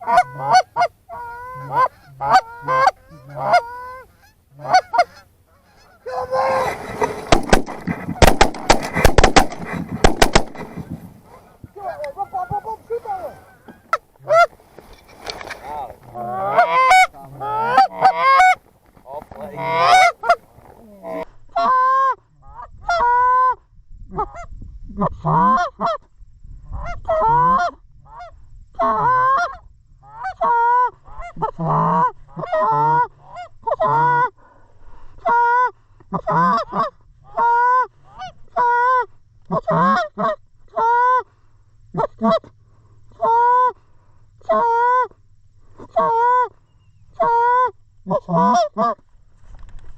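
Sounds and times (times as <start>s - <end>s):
geese honking: 0.0s - 14.6s, 15.4s - 21.8s.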